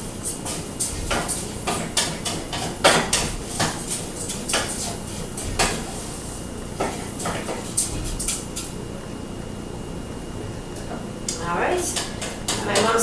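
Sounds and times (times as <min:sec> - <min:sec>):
rice frying in oil: 0:00.0 - 0:09.3, 0:10.7 - 0:13.0
utensil scraping a pan: 0:00.2 - 0:08.3.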